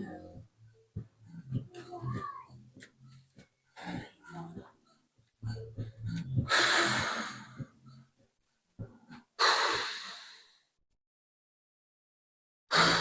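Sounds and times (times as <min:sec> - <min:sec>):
person exhaling forcefully: 0:06.5 - 0:07.6, 0:09.4 - 0:10.6, 0:12.7 - 0:13.0.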